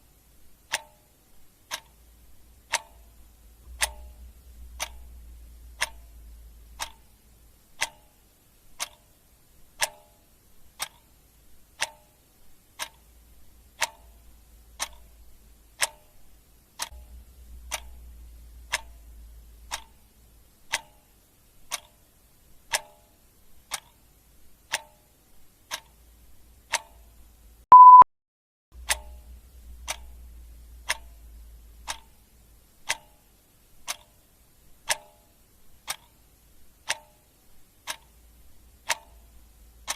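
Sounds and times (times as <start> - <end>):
clock ticking: 0.5 - 28.0, 28.8 - 39.9
short high beep: 27.7 - 28.1.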